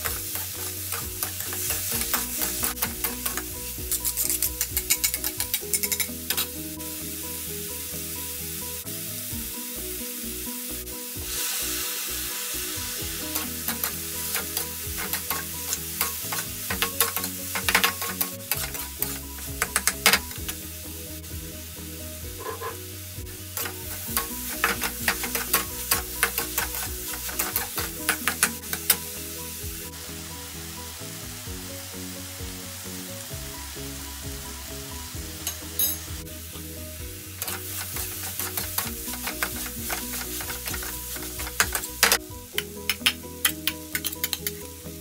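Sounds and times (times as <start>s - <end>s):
metal spatula scraping wok: 0.0s - 6.6s, 13.0s - 20.6s, 22.4s - 22.9s, 23.6s - 29.1s, 37.4s - 42.2s
rice sizzling in oil: 0.0s - 45.0s.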